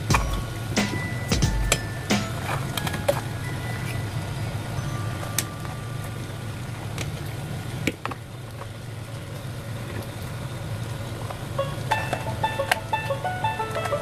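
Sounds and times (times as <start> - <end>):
steady low rumble: 0.0 - 2.0
music: 0.0 - 6.5, 11.6 - 14.0.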